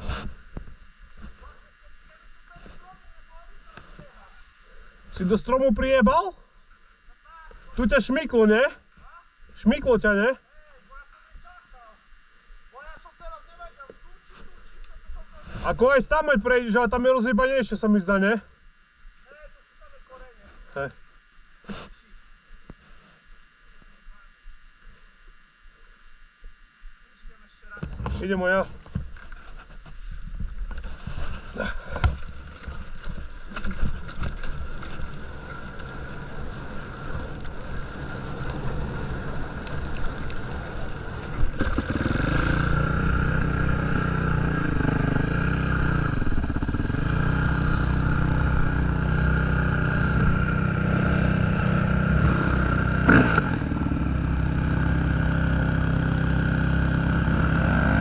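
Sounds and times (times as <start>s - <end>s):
motocross bike engine revving: 31.6s - 58.0s.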